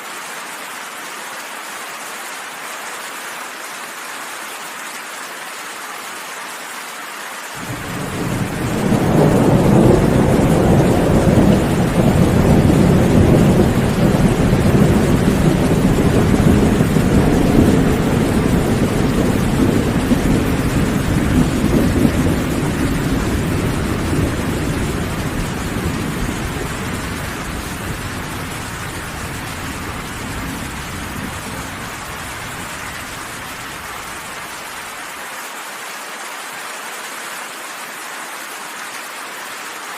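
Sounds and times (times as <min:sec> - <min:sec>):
steady rain: 0:00.0 - 0:39.9
thunder rolling: 0:07.6 - 0:34.4.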